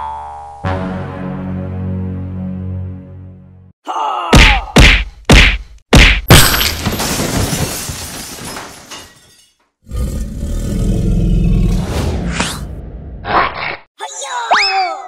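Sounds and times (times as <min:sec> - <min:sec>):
rubble clattering: 0:06.3 - 0:09.5
stone door shattering: 0:06.3 - 0:09.6
dinosaur roar: 0:09.9 - 0:11.9.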